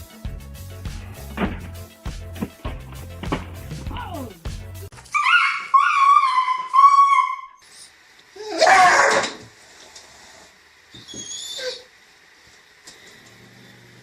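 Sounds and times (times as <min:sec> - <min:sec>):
animal high-pitched calls: 0:05.1 - 0:07.6, 0:11.0 - 0:11.9
animal loud noisy cry: 0:05.1 - 0:07.6, 0:08.4 - 0:09.5.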